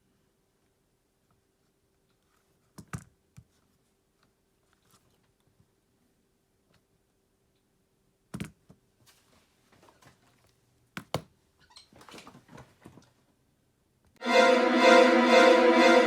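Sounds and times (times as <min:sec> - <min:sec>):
music: 0:14.2 - 0:16.0.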